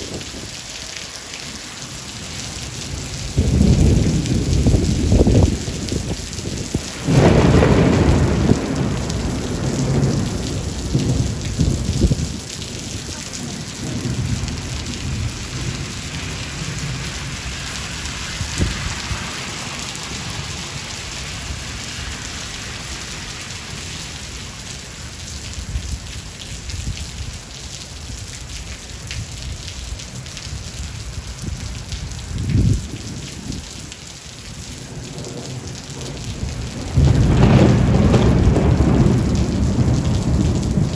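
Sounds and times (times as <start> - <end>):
heavy rain: 0.0 - 40.9
rolling thunder: 2.7 - 23.9, 30.8 - 33.7, 34.9 - 40.9
sharp thunder crack: 6.7 - 12.3, 36.0 - 40.9.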